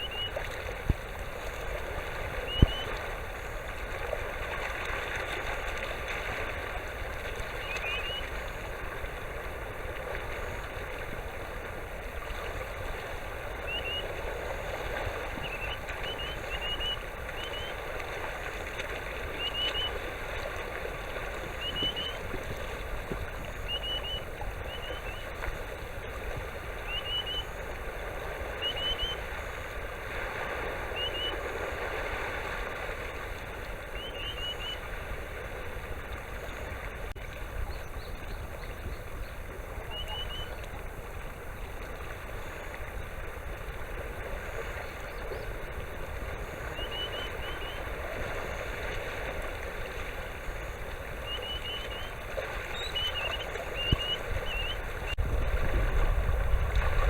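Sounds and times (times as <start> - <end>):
sandpiper rising whistles: 0.0 - 0.4, 2.4 - 3.0, 7.6 - 8.4, 13.6 - 14.2, 15.2 - 17.9, 19.2 - 20.2, 21.3 - 22.3, 23.4 - 25.4, 26.7 - 27.8, 28.4 - 29.7, 30.7 - 31.6, 33.9 - 35.0, 37.8 - 40.9, 44.5 - 48.7, 50.5 - 55.2.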